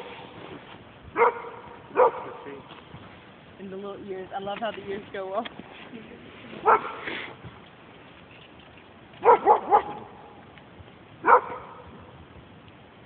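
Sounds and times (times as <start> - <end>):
dog barking: 1.2 - 2.5, 6.6 - 7.0, 9.2 - 10.4, 11.2 - 11.9.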